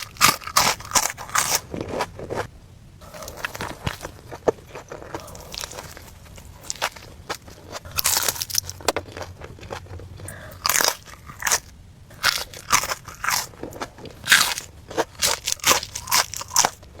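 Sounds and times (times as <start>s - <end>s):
crunchy food chewing: 0.0s - 17.0s.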